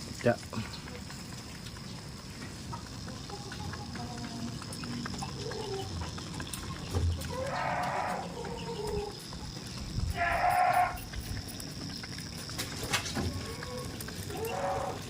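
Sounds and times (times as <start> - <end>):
goats bleating: 7.2 - 8.8, 10.1 - 11.1, 13.4 - 15.0.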